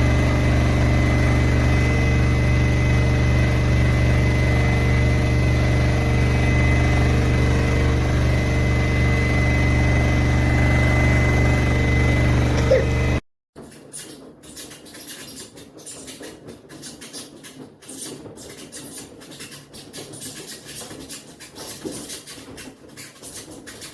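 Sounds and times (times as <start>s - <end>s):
thin high whine: 0.0s - 13.2s
washing machine motor hum: 0.0s - 13.2s.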